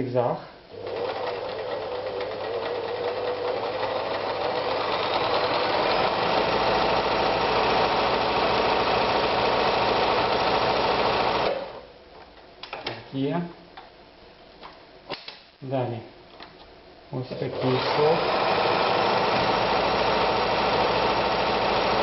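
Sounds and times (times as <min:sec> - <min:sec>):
sewing machine running: 0:00.7 - 0:11.8, 0:17.5 - 0:22.0.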